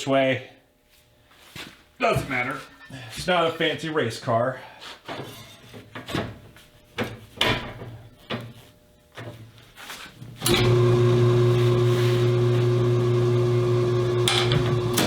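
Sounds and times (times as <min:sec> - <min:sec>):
tire changer motor humming: 0:10.4 - 0:15.0.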